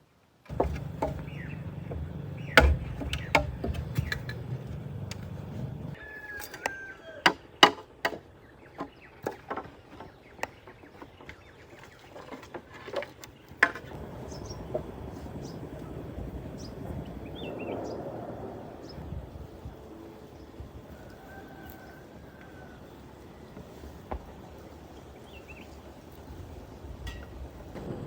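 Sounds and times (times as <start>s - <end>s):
tool knocking on wood: 0.5s - 5.9s
low hum: 0.5s - 6.0s.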